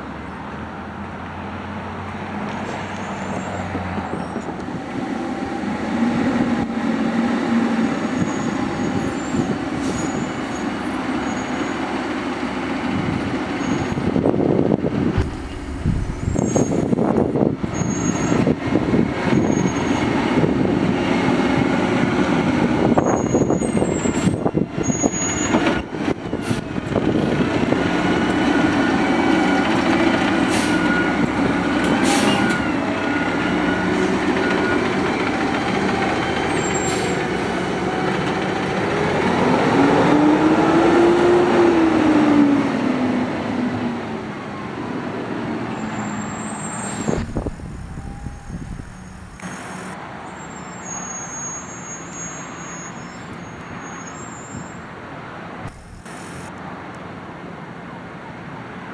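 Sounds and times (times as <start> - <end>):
knocks and clanks: 15.2 - 18.2
garbage truck idling: 26.2 - 39.4, 46.0 - 50.0.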